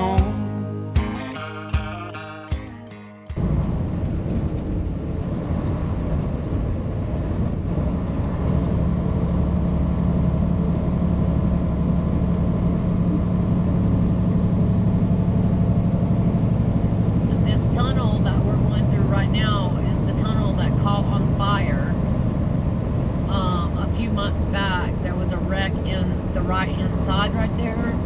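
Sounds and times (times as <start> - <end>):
truck diesel engine droning: 0.0 - 3.8
road and tyre rumble: 3.4 - 28.0.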